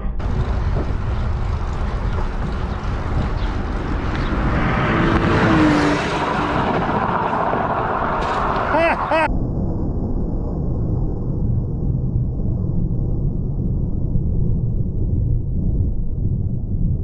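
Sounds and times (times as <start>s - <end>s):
car driving in traffic: 0.2s - 9.3s.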